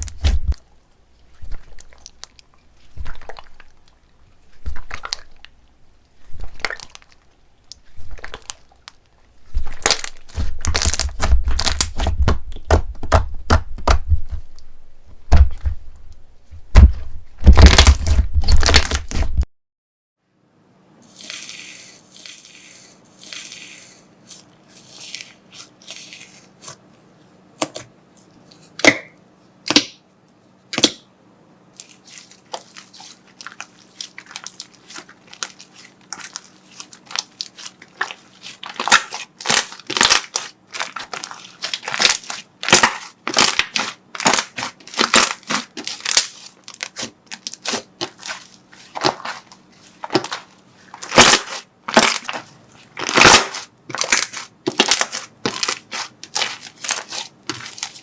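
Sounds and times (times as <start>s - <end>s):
slime swishing: 1.2s - 5.5s, 21.0s - 26.8s, 31.8s - 58.0s
slime crackling and crunching: 1.2s - 5.6s, 6.2s - 14.0s, 16.7s - 19.4s, 31.8s - 58.0s.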